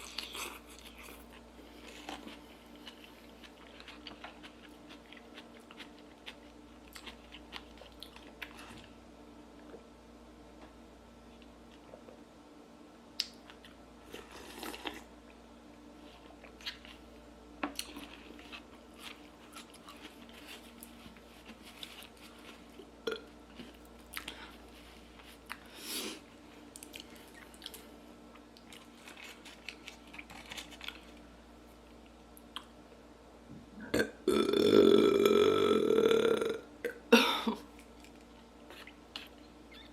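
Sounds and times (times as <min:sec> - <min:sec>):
person chewing food: 0:00.0 - 0:09.0, 0:13.2 - 0:15.4, 0:16.0 - 0:32.8, 0:37.6 - 0:39.9
loud burp: 0:33.8 - 0:37.6.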